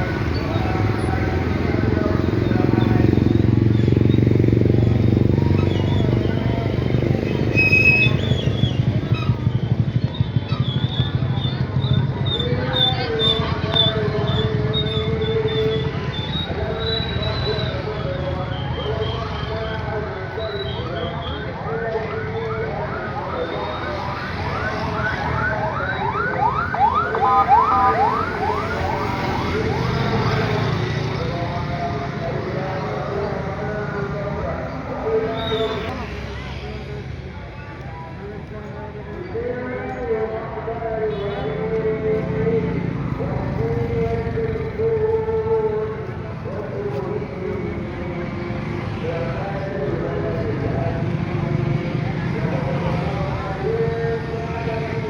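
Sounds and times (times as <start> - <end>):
electronic alarm siren whooping: 22.4 - 30.2.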